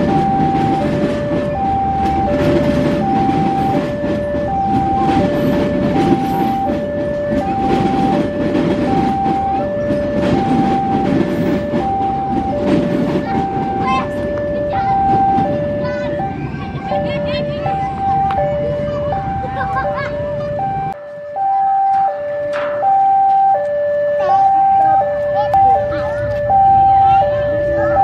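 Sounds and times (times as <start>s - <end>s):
train rumbling and clattering past: 0.0s - 21.0s
level crossing alarm two-tone: 0.0s - 28.0s.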